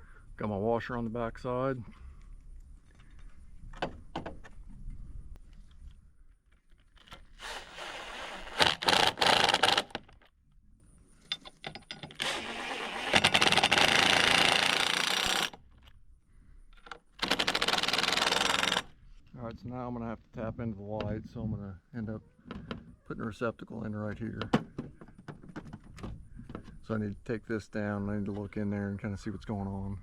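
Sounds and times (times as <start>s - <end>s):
power drill driving screws: 7.1s - 10.1s, 12.0s - 15.6s, 17.2s - 18.9s.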